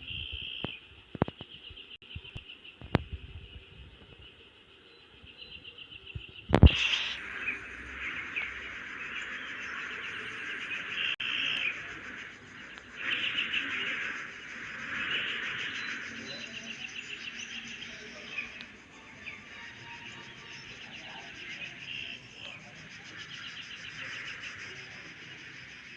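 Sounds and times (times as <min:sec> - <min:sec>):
high chorus of chirping: 0:00.0 - 0:25.9
loud chirping bursts: 0:06.6 - 0:25.9.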